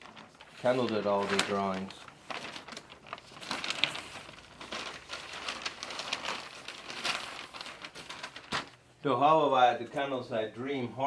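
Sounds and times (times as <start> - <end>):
paper rustling and crinkling: 0.0 - 8.8.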